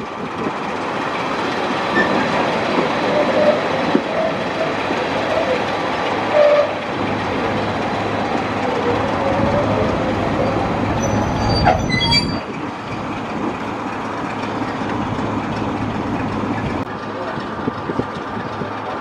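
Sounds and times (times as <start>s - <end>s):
diesel train rumbling on rails: 0.0s - 19.0s
train wheels squealing: 1.9s - 2.4s, 3.0s - 5.7s, 6.3s - 6.8s, 8.6s - 12.5s.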